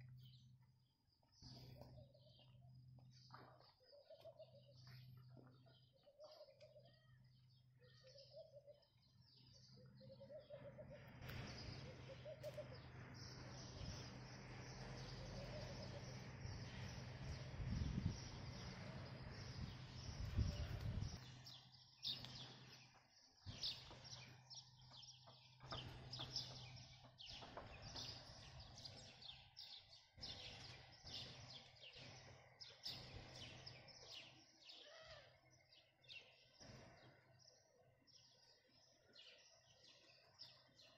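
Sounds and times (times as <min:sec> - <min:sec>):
birds twittering: 0:00.0 - 0:40.9
low hum: 0:09.0 - 0:23.0.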